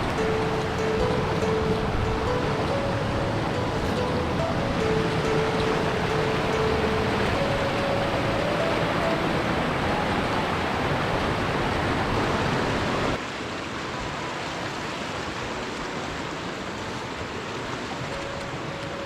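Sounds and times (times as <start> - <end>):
rushing falling water: 0.0 - 19.0.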